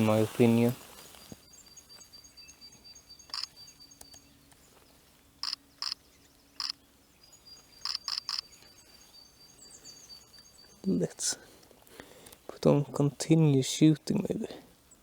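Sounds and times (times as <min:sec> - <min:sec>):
songbirds high thin calls: 0:00.0 - 0:11.2
camera shutter clicks: 0:07.9 - 0:08.4.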